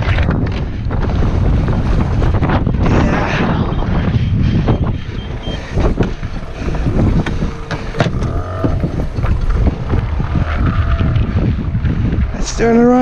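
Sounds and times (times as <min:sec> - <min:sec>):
wind buffeting microphone: 0:00.0 - 0:13.0
gear knocking and clattering: 0:04.8 - 0:12.3.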